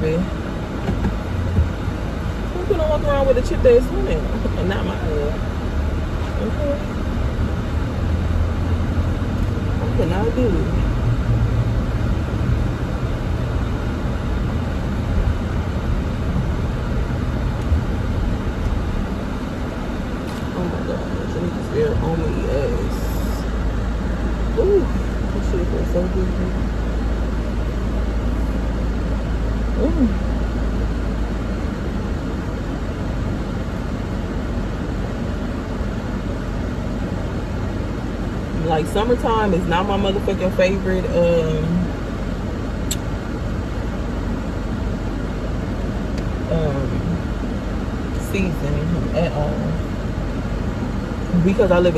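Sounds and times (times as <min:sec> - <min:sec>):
air conditioning running: 0:00.0 - 0:51.9
car engine and road noise: 0:00.0 - 0:51.9
low even rumble: 0:00.0 - 0:51.9.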